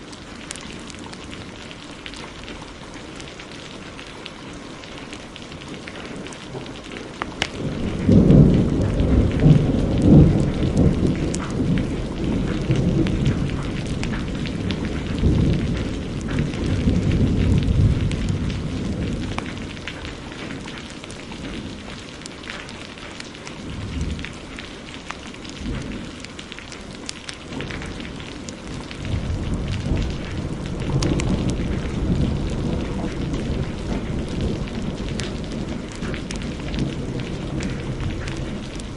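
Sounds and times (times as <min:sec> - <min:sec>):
heavy rain: 0:00.0 - 0:38.9
thunder rolling: 0:07.5 - 0:20.7, 0:27.5 - 0:38.9.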